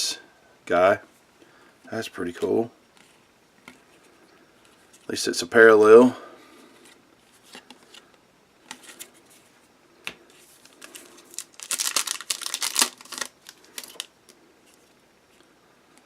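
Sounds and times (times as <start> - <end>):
cards rustling: 6.6 - 9.5, 10.3 - 15.5.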